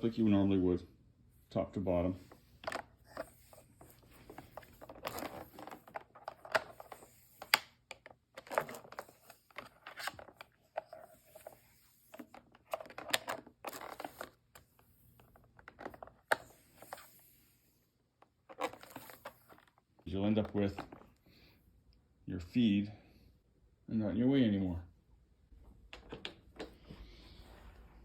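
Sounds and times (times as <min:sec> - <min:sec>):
cord scraping against plastic: 0:01.9 - 0:17.4, 0:18.2 - 0:21.2.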